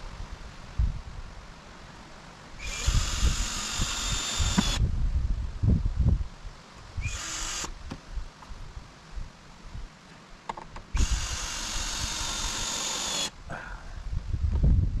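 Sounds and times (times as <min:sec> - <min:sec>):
power drill driving screws: 0:02.6 - 0:04.8, 0:07.0 - 0:07.8, 0:10.9 - 0:13.3.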